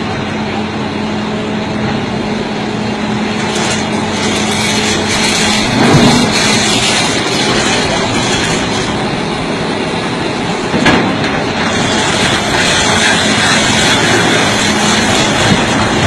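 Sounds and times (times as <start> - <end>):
heavy machine engine under load: 0.0 - 16.0
rocks grinding on truck: 3.3 - 9.2, 10.6 - 16.0.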